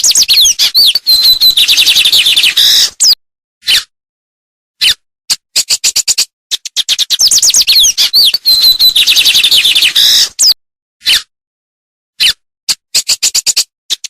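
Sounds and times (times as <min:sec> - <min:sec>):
songbird singing: 0:00.0 - 0:03.2, 0:07.2 - 0:10.6.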